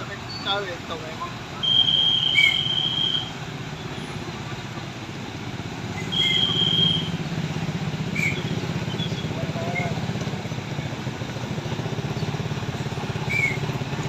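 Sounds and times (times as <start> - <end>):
diesel truck engine idling: 0.0 - 14.0
high steady whistle tone: 1.6 - 3.4, 5.9 - 7.2, 8.1 - 10.0.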